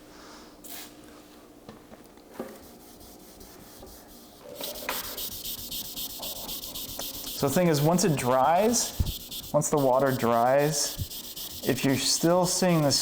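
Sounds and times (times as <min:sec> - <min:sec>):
wet sandpaper rubbing on car door: 0:04.6 - 0:13.0.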